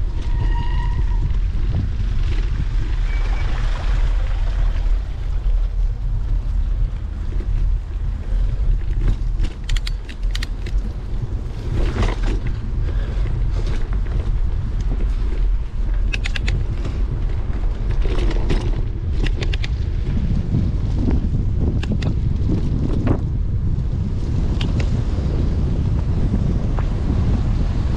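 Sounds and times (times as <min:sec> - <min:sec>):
wind buffeting microphone: 0:00.0 - 0:27.9
quick clicks from bicycle: 0:08.4 - 0:15.3, 0:15.9 - 0:20.1, 0:21.7 - 0:23.2, 0:24.5 - 0:25.0.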